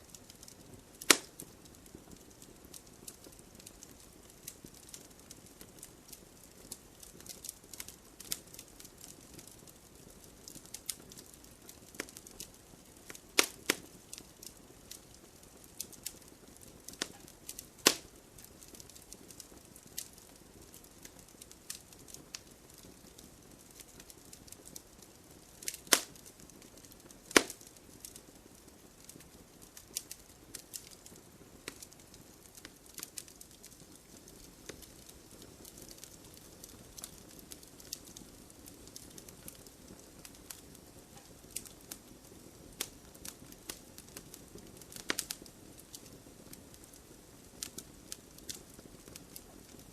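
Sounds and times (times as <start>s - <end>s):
campfire crackling and hissing: 0.0s - 49.9s
sharp pops of burning wood: 0.1s - 49.9s.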